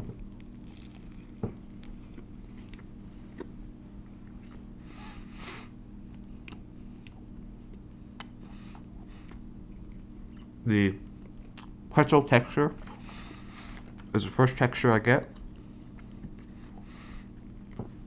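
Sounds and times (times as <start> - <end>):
person biting and chewing: 0.1 - 3.6.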